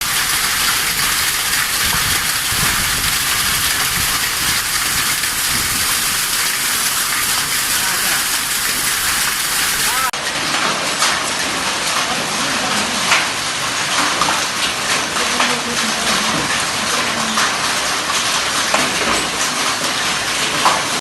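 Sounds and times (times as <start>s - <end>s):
hailstones striking hard surfaces: 0.0s - 21.0s
heavy rain: 0.0s - 21.0s.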